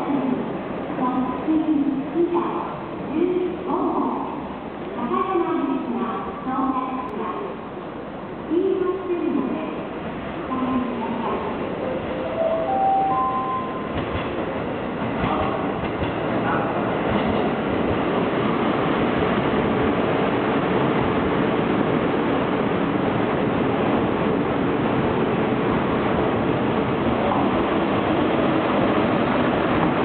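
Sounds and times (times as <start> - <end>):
diesel train rumbling along track: 0.0 - 30.0.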